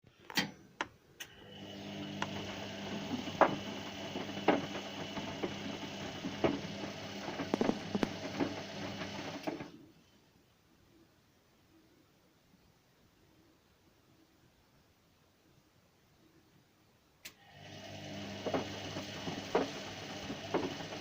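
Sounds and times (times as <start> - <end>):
appliance motor hum with knocks: 1.6 - 9.7, 17.5 - 21.0.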